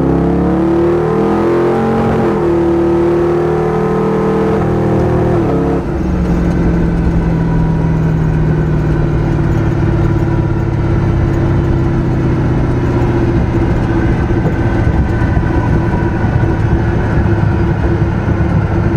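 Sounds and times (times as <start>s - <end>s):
car engine running roughly: 2.2s - 18.9s.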